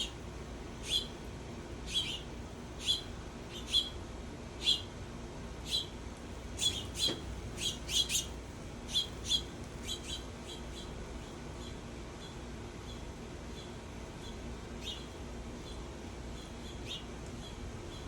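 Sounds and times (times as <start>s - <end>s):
songbird chip calls: 0.8s - 1.1s, 1.9s - 4.0s, 4.6s - 4.9s, 6.6s - 8.3s, 8.9s - 10.9s.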